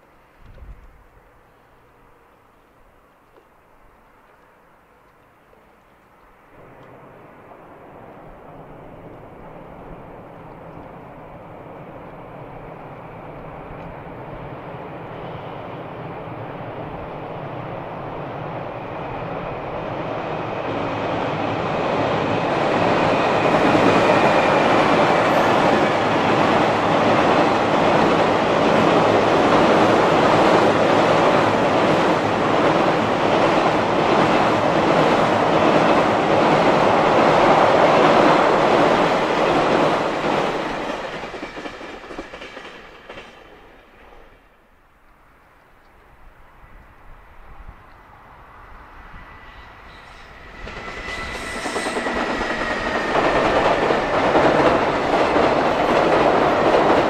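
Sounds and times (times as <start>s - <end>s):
train rumble and wheel clatter: 0.0s - 57.0s.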